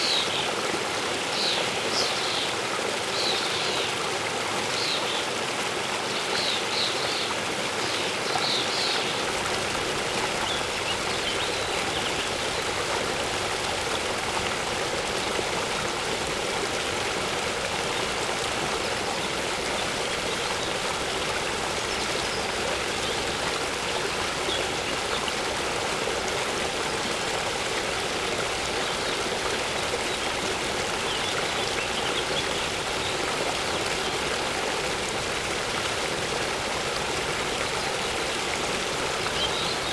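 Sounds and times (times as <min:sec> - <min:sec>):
waterfall rushing: 0:09.0 - 0:39.9.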